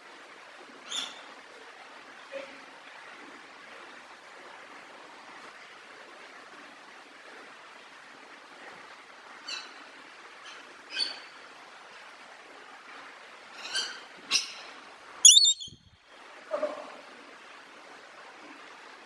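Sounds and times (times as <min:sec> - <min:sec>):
parrot sharp call: 0:15.2 - 0:15.8.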